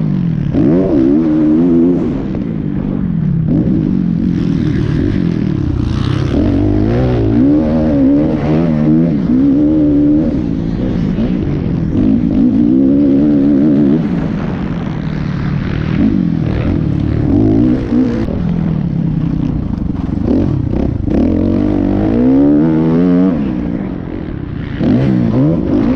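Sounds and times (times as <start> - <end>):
motocross bike engines revving: 0.0 - 25.9.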